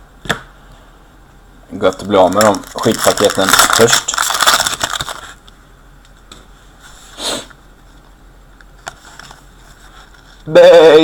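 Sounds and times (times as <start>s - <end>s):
wrappers crinkling and rustling: 1.8s - 5.4s
person sniffing: 7.0s - 7.6s.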